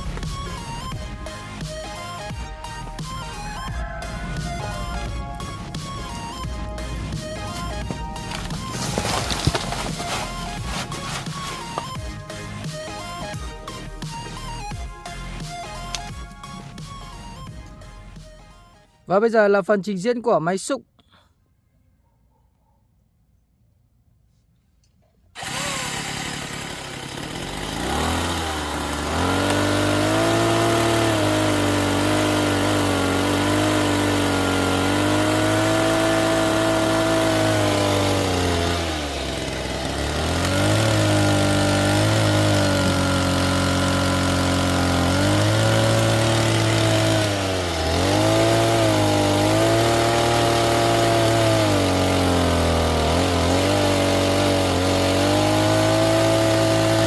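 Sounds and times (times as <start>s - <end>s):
model excavator motor running: 5.3s - 13.1s, 25.4s - 57.0s.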